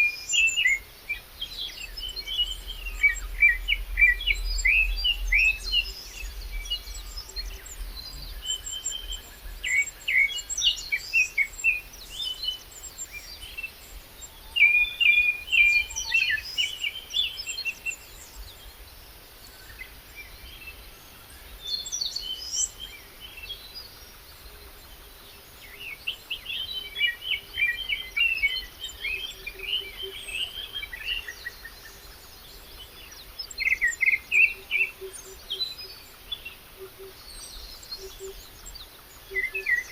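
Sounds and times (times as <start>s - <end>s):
birds chirping and trilling: 1.5s - 18.9s.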